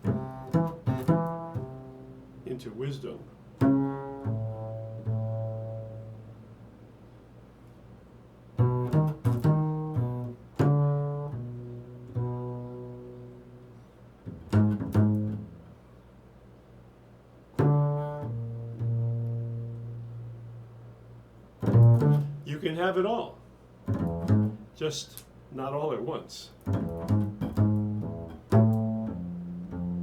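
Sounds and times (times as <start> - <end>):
plucked string instrument solo: 21.6 - 22.5, 26.7 - 30.0.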